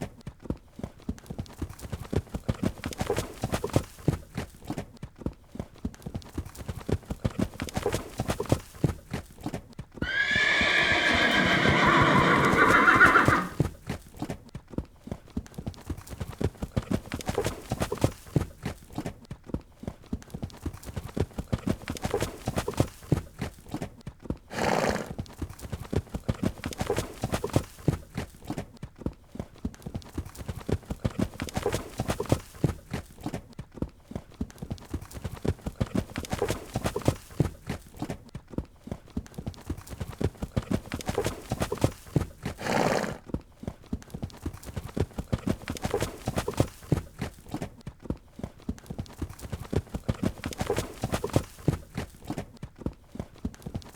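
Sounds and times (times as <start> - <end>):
horse hoofbeats galloping: 0.0 - 53.9
horse whinnying: 10.0 - 13.7, 24.5 - 25.2.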